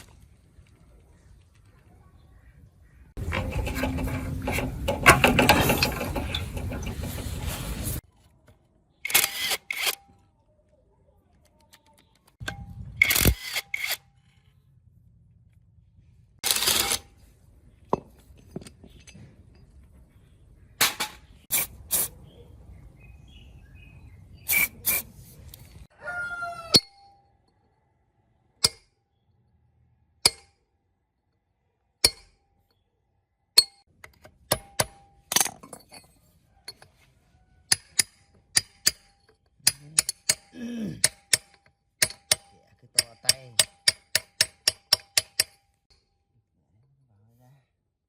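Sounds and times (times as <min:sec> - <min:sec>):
metal tools clinking on engine: 0:03.2 - 0:08.0, 0:33.7 - 0:36.9.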